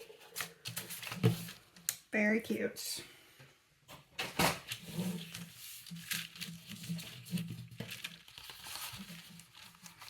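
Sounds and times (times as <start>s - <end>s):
paper rustling and crinkling: 0.0s - 1.9s, 4.2s - 10.0s.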